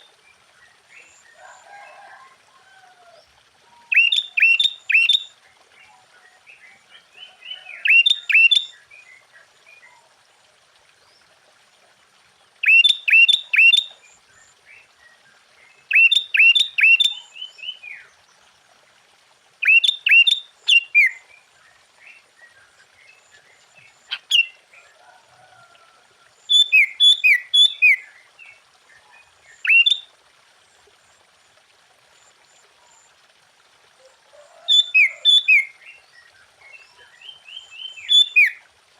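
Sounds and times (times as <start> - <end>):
bulbul singing: 3.9 - 5.2.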